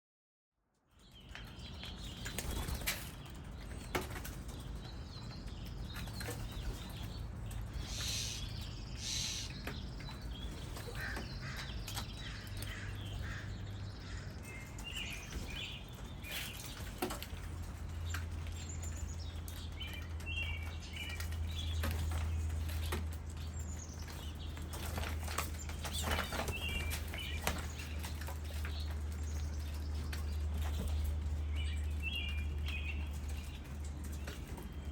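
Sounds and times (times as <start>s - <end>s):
small birds chirping: 0.8s - 34.9s
wings fluttering: 1.2s - 13.4s, 21.2s - 31.4s.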